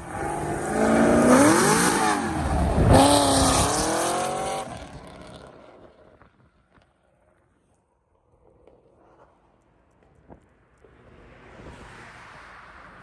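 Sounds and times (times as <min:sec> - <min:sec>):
car engine revving: 0:00.0 - 0:05.6.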